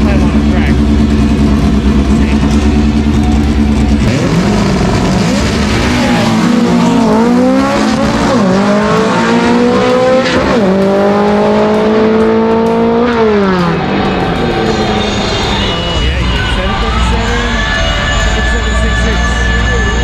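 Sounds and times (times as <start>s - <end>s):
car engine at full throttle: 0.0s - 20.0s.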